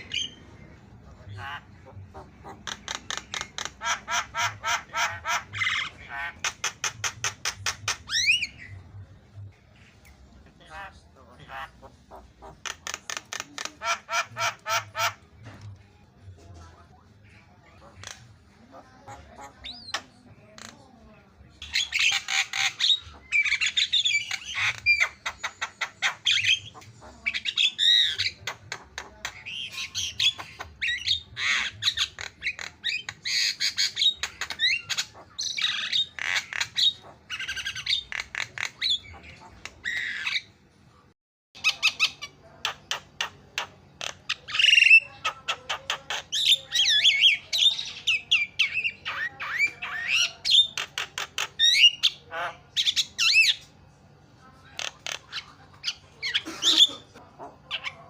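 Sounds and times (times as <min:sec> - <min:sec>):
bird squawking and chattering: 0:00.0 - 0:15.6, 0:17.0 - 0:20.8, 0:21.6 - 0:40.6, 0:41.6 - 0:53.7, 0:54.6 - 0:58.0.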